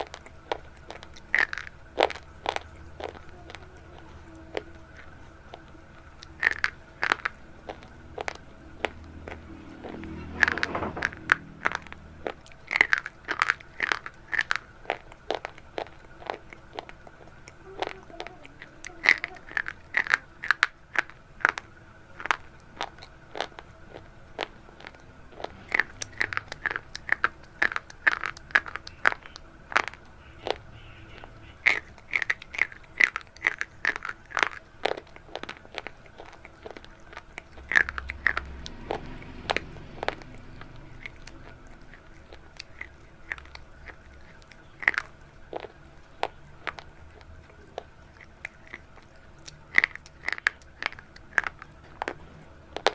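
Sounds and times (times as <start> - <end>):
brittle crunching: 0.0 - 30.6, 31.5 - 52.9.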